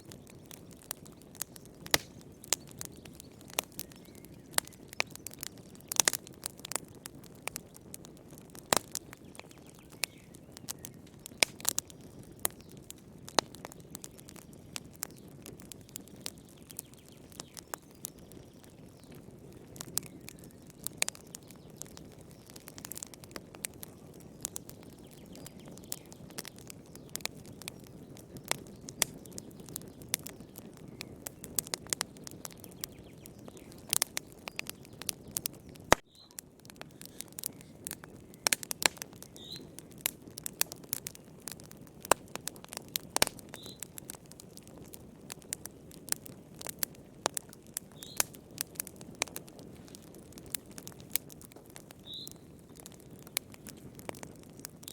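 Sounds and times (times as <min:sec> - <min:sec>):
low hiss of burning: 0:00.0 - 0:54.9
wood fire crackling and popping: 0:00.0 - 0:54.9.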